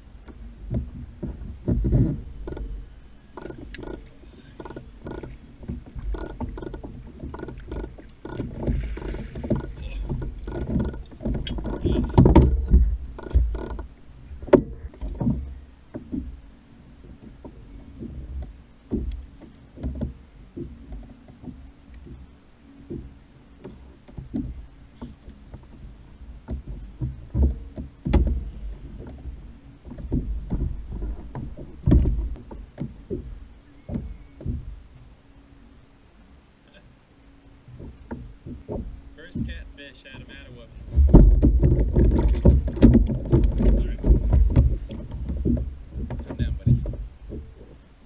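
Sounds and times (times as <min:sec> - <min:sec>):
low rumble: 0:00.0 - 0:20.8
faint steady hum: 0:00.0 - 0:48.0.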